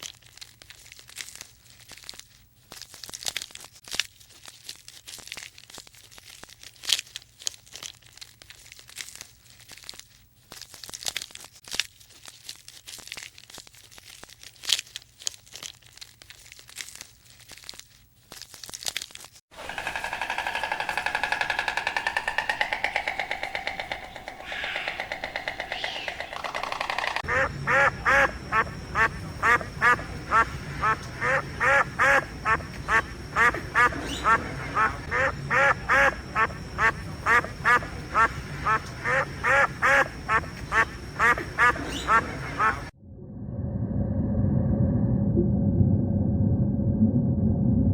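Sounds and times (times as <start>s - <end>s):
ducks quacking: 19.6s - 42.9s.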